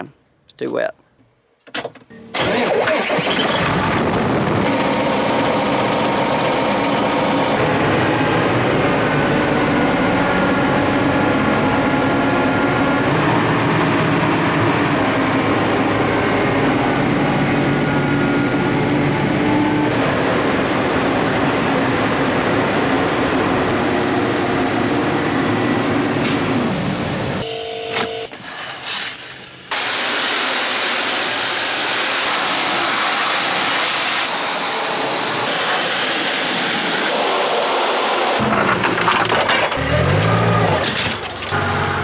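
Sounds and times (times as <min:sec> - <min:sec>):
diesel engine rumbling: 0:02.4 - 0:27.4, 0:38.3 - 0:42.0.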